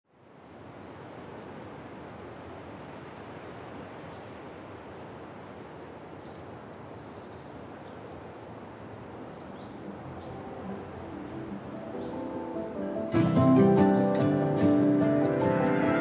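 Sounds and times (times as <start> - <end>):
outdoor ambient noise: 0.1 - 16.0
small birds chirping: 4.1 - 5.0, 6.1 - 12.5
music: 10.0 - 16.0.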